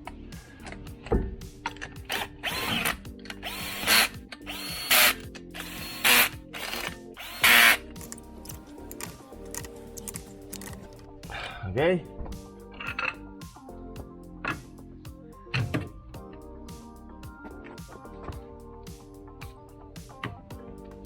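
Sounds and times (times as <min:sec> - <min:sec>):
cordless power tool spinning: 0:02.1 - 0:08.2.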